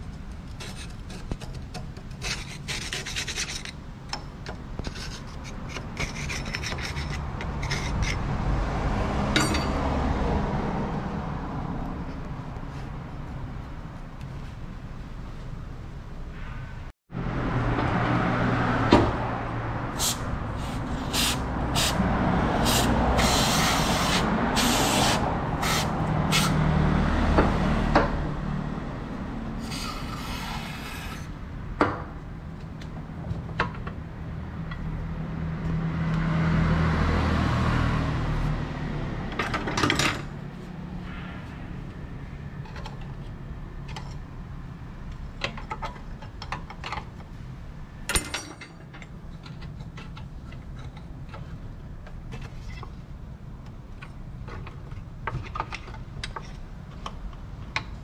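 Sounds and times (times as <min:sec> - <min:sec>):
short hisses: 0:20.0 - 0:22.0.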